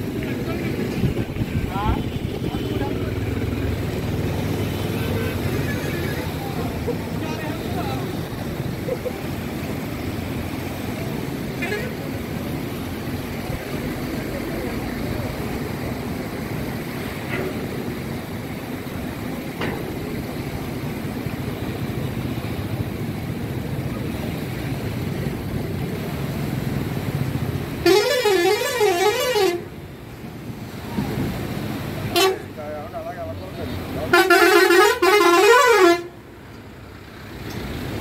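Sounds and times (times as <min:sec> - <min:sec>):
outdoor background noise: 0:00.0 - 0:38.0
warbling vehicle horn: 0:27.8 - 0:29.7, 0:32.1 - 0:32.5, 0:34.1 - 0:36.2.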